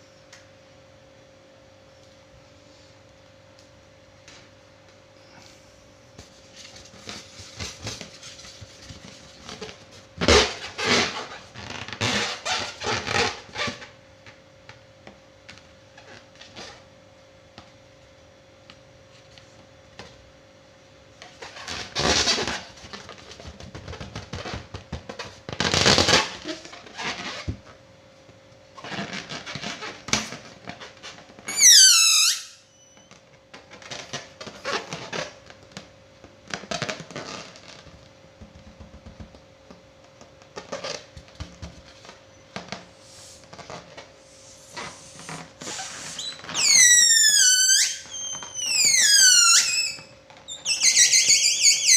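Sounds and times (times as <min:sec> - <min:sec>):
balloon squeal: 0:31.0 - 0:33.1, 0:43.4 - 0:51.9.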